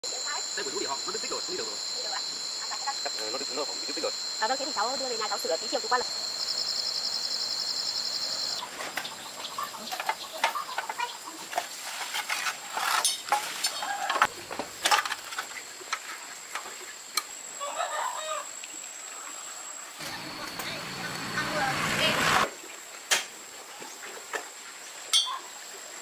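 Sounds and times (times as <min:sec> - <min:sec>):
pulsing insect trill: 0:00.0 - 0:08.7, 0:12.7 - 0:22.4
chickens clucking: 0:08.6 - 0:11.4.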